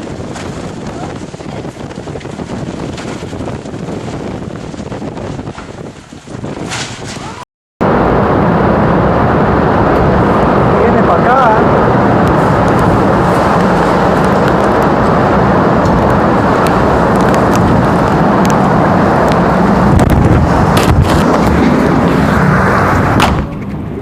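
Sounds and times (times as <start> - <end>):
strong wind roaring on microphone: 0.0 - 24.0.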